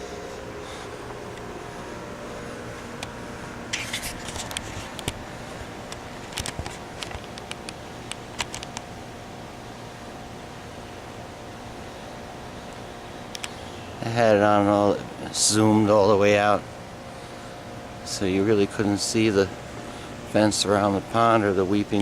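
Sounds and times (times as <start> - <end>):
steady background hum: 0.0 - 22.0
sharp clicks and crackles: 3.0 - 5.2, 5.9 - 8.9, 13.3 - 13.6.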